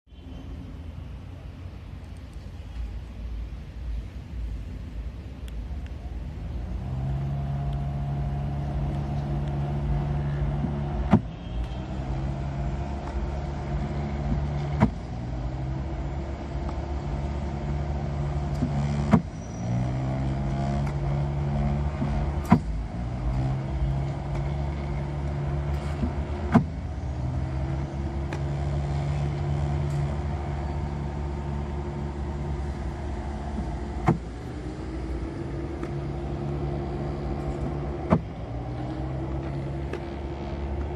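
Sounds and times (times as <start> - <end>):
ball fired with sharp pop: 14.3 - 15.0, 34.0 - 34.4
ball machine motor humming: 20.3 - 40.9.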